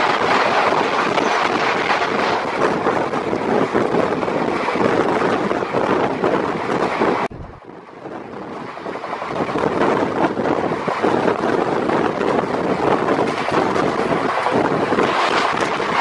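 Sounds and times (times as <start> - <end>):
train wheels rumbling on rails: 0.0 - 16.0
wind rushing over microphone: 0.0 - 16.0.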